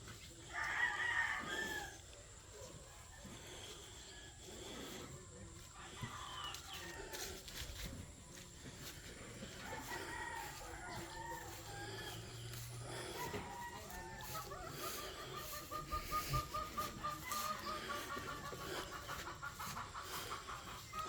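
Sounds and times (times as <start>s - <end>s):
chickens clucking: 0.0s - 21.0s
rooster crowing: 0.5s - 2.1s, 9.4s - 19.2s.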